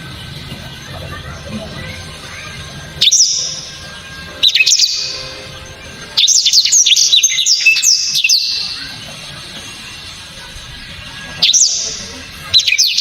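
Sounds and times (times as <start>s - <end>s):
canary whistling song: 0.0s - 13.0s.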